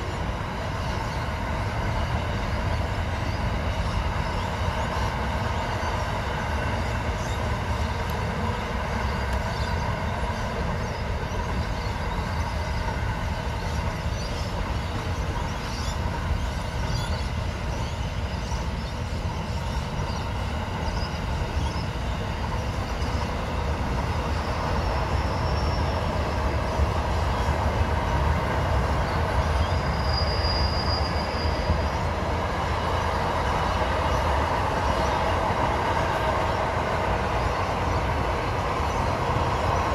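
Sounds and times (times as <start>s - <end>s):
train wheels rumbling on rails: 0.0s - 39.9s
high-pitched wheel squeals: 29.4s - 32.2s.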